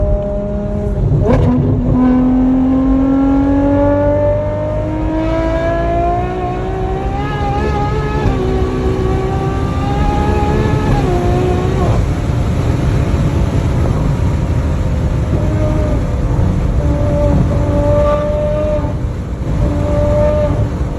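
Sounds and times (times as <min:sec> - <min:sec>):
car engine accelerating: 0:00.0 - 0:20.9.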